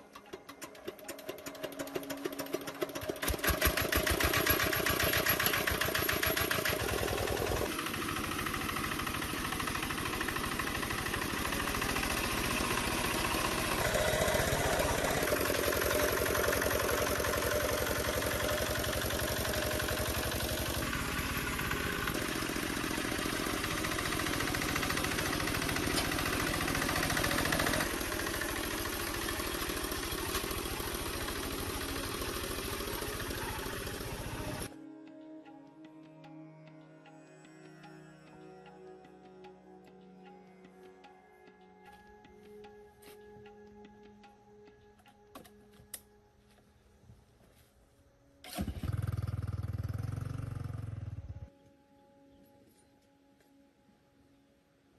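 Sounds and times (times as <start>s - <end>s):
diesel tractor engine starting: 0.0s - 34.7s, 48.4s - 51.5s.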